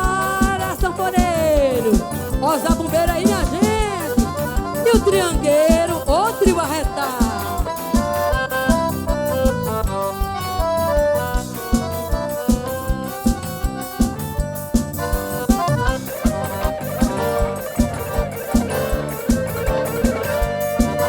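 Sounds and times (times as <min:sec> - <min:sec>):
accordion melody: 0:00.0 - 0:21.0
bass drum beat: 0:00.0 - 0:21.0.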